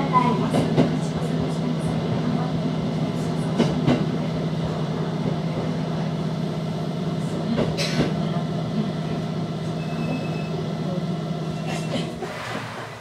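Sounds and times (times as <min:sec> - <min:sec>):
train running hum: 0:00.0 - 0:13.0.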